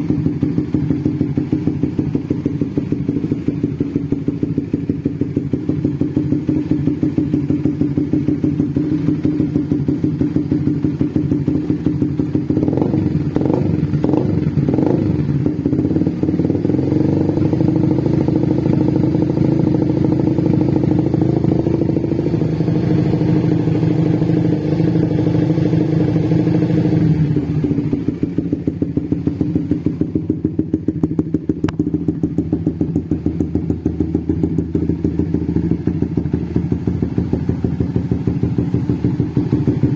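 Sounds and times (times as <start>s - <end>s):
motorcycle engine idling: 0.0s - 39.9s
engine throttle blips: 26.7s - 39.9s.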